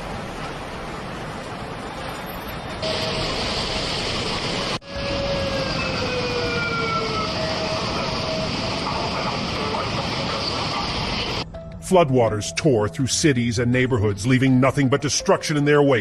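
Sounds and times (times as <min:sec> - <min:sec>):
floodwater rushing: 0:00.0 - 0:04.8.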